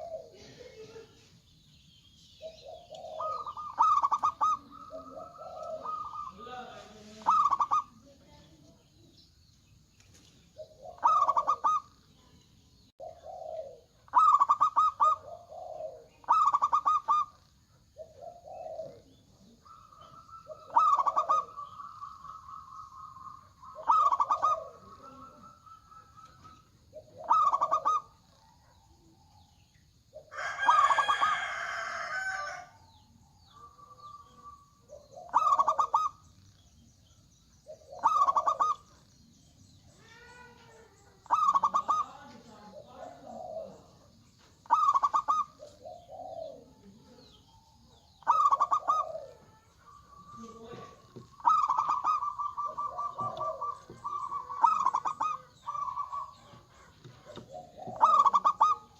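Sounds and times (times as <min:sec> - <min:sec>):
doves trilled cooing: 0:00.0 - 0:58.9
loud harsh bird call: 0:48.1 - 0:58.9.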